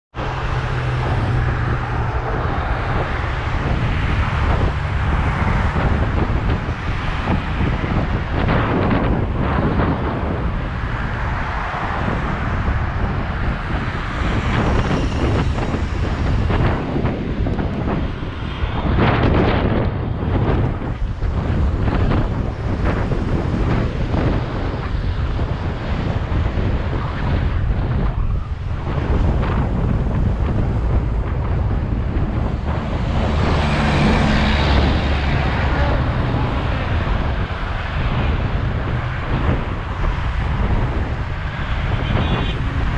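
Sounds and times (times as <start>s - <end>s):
highway traffic noise: 0.1s - 42.9s
wind buffeting microphone: 0.1s - 42.9s.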